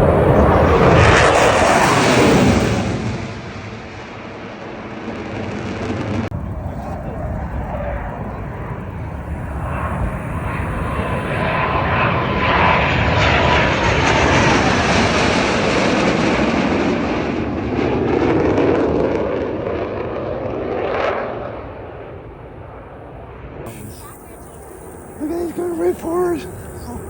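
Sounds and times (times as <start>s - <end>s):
faint whine dropping in pitch: 0.0s - 2.7s, 5.9s - 14.2s, 23.7s - 27.0s
airplane engine flying past: 0.0s - 27.0s.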